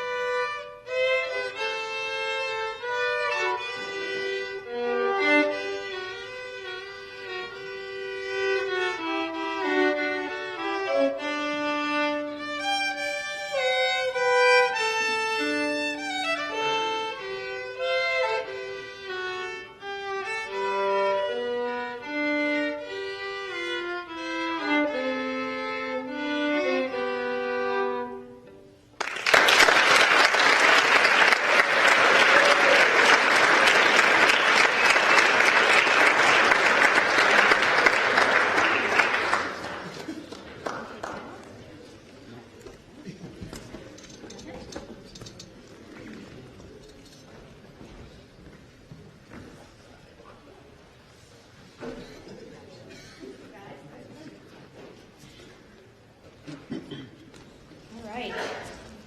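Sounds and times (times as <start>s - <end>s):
solo violin melody: 0.0s - 28.9s
audience applauding: 29.0s - 41.9s.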